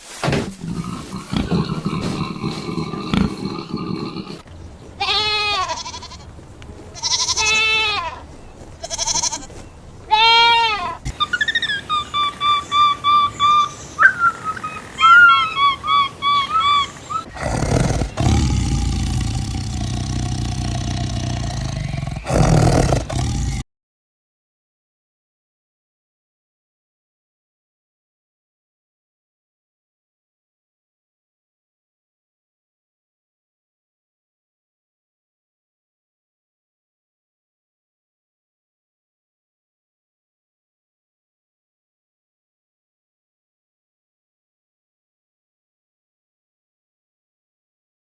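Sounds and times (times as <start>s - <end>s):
long rough noisy animal sound: 0.6s - 4.5s, 17.1s - 23.6s
drawn-out pitched animal calls: 0.6s - 6.3s, 10.1s - 23.6s.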